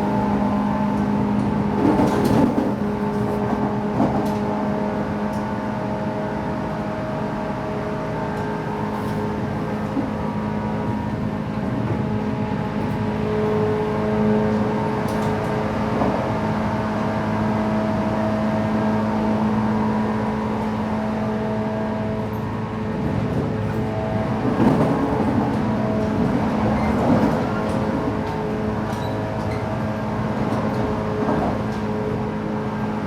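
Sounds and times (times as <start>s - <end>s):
wheel-on-rail rumble: 0.0s - 5.5s, 22.0s - 33.0s.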